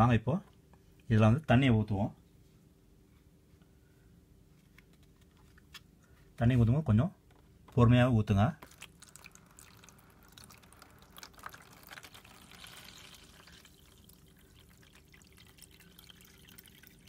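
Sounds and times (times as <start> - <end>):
water trickling into plastic bottle: 8.6 - 17.0.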